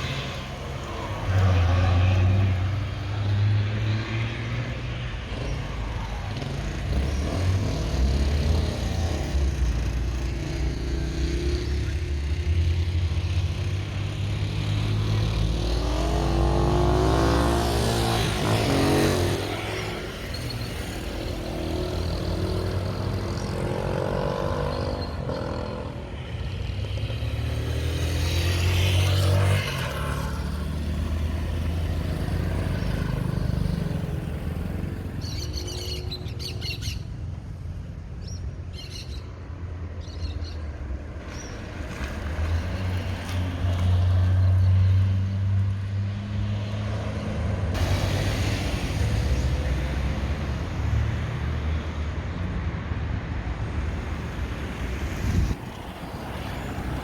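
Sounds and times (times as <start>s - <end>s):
vehicles passing: 0.0s - 57.0s
birds chirping: 30.7s - 43.1s.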